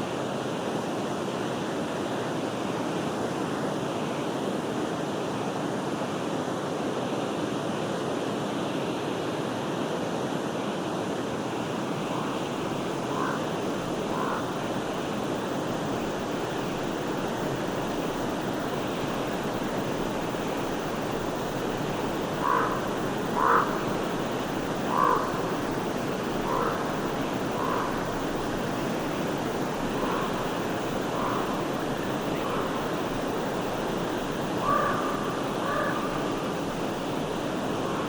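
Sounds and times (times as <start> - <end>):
stream water rushing: 0.0 - 38.0
bird calls: 12.1 - 14.6, 22.4 - 24.0, 24.9 - 28.4, 29.8 - 33.7, 34.5 - 38.0.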